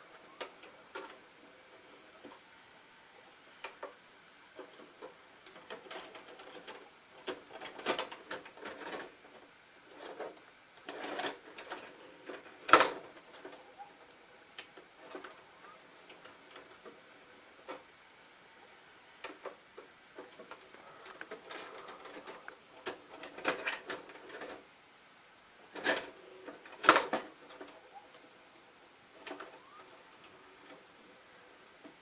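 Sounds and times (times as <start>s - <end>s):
plastic parts clicking: 19.2s - 24.6s.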